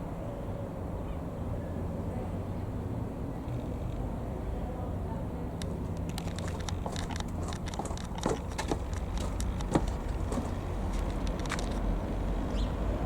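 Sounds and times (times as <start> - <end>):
distant light aircraft engine drone: 0.0 - 13.0
sharp clicks and crackles: 5.6 - 11.9.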